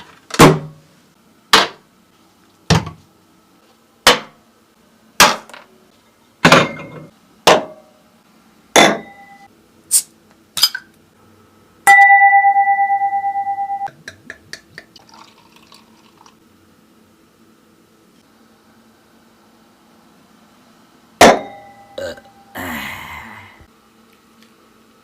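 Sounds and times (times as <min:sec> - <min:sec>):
pulsing ringing tone: 0:09.0 - 0:09.5, 0:11.9 - 0:13.9.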